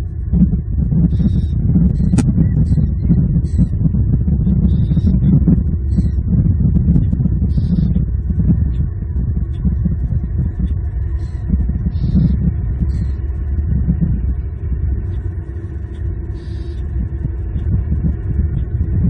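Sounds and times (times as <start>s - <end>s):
low rumble: 0.0s - 19.0s
small birds chirping: 1.1s - 3.8s, 4.4s - 8.8s, 9.5s - 13.3s.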